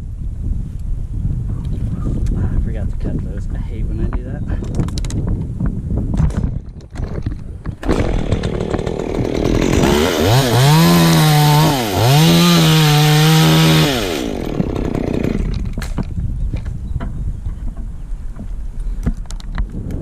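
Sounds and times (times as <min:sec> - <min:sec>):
chainsaw revving: 0:07.8 - 0:15.8.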